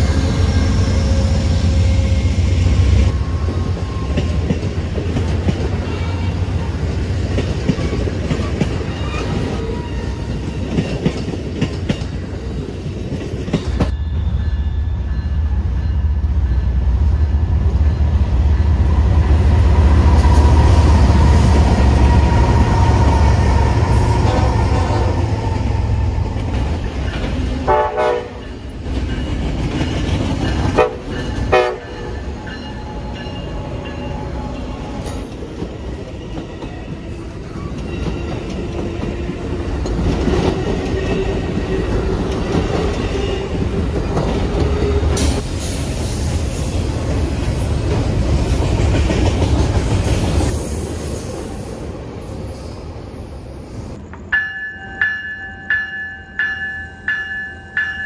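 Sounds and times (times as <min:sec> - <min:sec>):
diesel locomotives rumbling: 0:00.0 - 0:58.0
train horn blasts: 0:24.0 - 0:25.4, 0:27.6 - 0:28.5, 0:30.7 - 0:32.2
wheels clattering on rails: 0:28.3 - 0:45.4.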